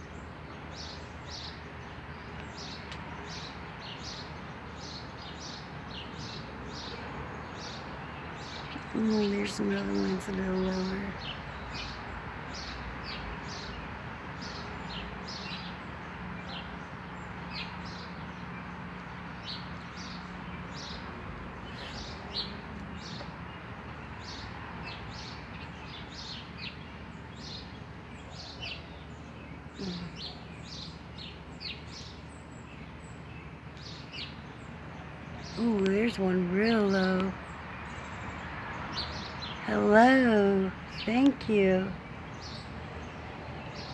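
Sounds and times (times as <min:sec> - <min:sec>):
small birds chirping: 0:00.0 - 0:43.9
steady background noise: 0:00.0 - 0:43.9.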